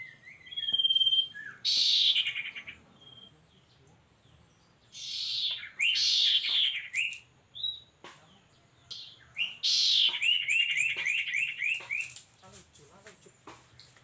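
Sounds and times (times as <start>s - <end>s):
short rising bird chirps: 0.0s - 3.4s, 4.9s - 7.9s, 8.9s - 12.2s
songbirds harsh buzzy calls: 0.0s - 14.0s.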